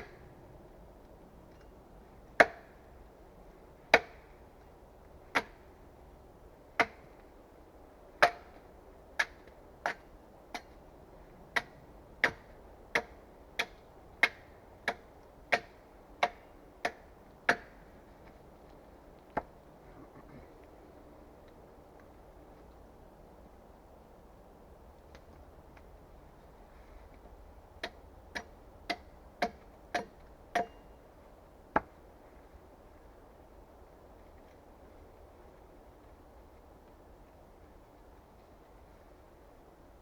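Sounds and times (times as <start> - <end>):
axe chopping wood: 2.4 - 2.8, 3.9 - 4.3, 5.3 - 5.6, 6.8 - 7.1, 8.2 - 8.6, 11.6 - 17.8, 27.8 - 30.8.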